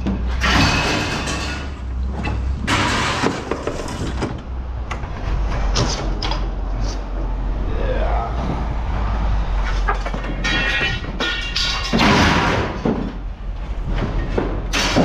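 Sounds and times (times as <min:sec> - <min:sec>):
sharp metal knocks: 0:00.0 - 0:01.8, 0:02.6 - 0:03.6, 0:09.8 - 0:13.2, 0:14.4 - 0:15.0
aluminium scrap scraping and clattering: 0:00.2 - 0:04.4, 0:09.5 - 0:13.2
low engine rumble: 0:01.1 - 0:12.0.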